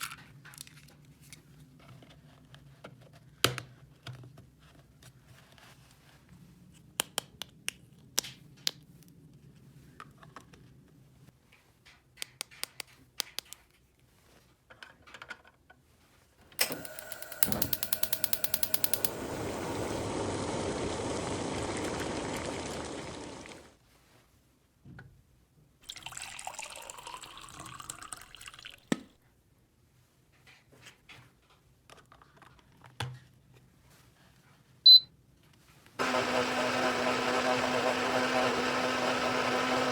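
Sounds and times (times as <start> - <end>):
rapid clicking: 16.6 - 20.1
water running: 16.6 - 23.7, 25.9 - 28.8.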